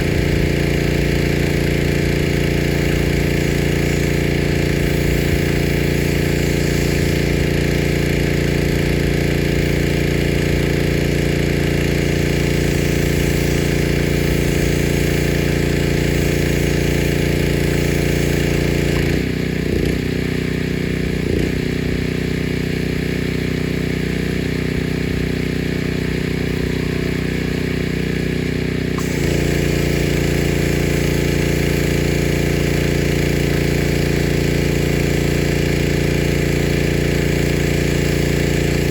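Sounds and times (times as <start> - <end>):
water spray hissing: 0.0 - 19.3, 28.9 - 38.9
pressure washer running: 0.0 - 38.9.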